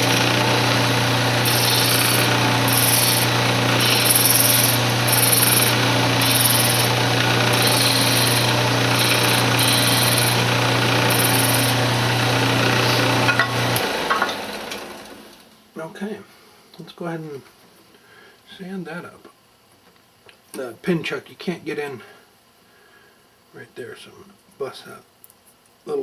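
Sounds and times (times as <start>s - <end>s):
turning tool scraping wood: 0.0s - 14.8s
lathe motor humming: 0.0s - 15.4s.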